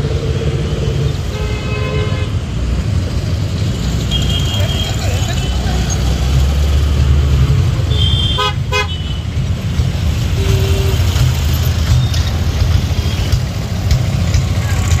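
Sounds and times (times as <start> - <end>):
train coaches rumbling: 8.6 - 15.0.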